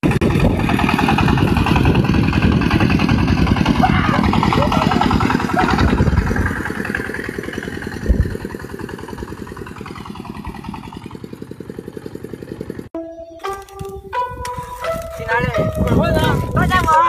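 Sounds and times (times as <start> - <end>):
diesel engine chugging: 0.0 - 13.2.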